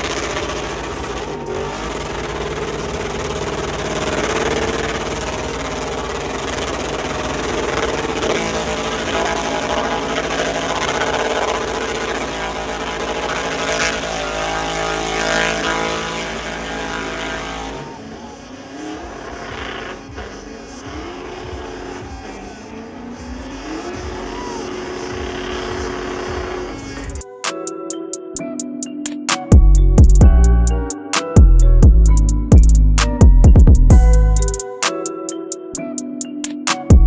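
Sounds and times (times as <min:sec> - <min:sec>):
truck engine revving hard: 0:00.0 - 0:27.3.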